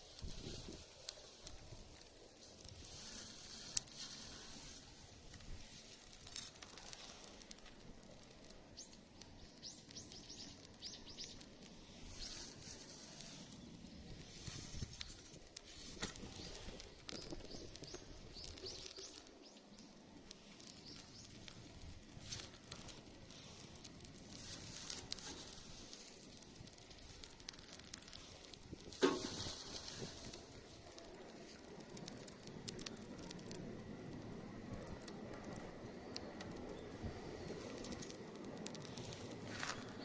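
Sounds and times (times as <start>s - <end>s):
small birds chirping: 6.2s - 28.6s, 34.8s - 40.0s.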